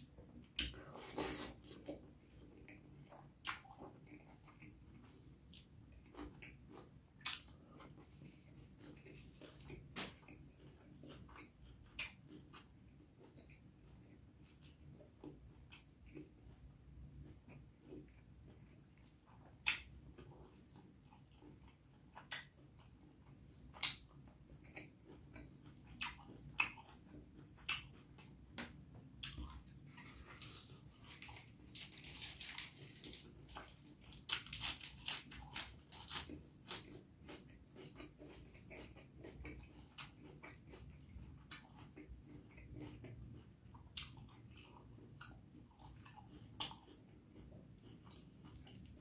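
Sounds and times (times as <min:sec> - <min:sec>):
person chewing food: 0:00.0 - 0:49.0.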